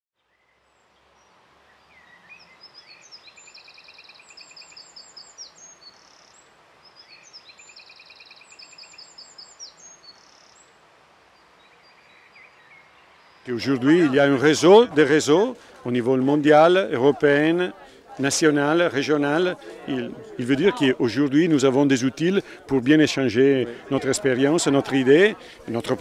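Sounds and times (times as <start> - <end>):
songbird chirping and trilling: 0.2 - 15.5
faint steady hiss: 0.2 - 26.0.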